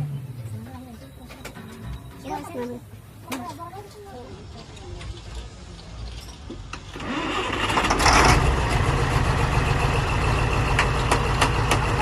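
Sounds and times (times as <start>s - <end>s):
engine starting and idling: 6.9s - 12.0s.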